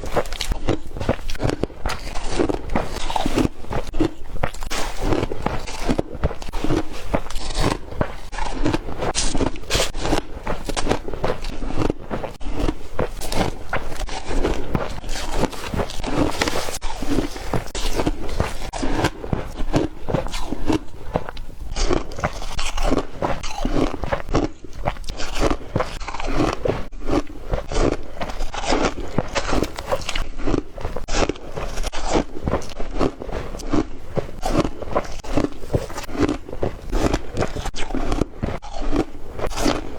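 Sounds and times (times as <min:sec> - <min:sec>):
ice cubes crunching: 0:00.0 - 0:39.9.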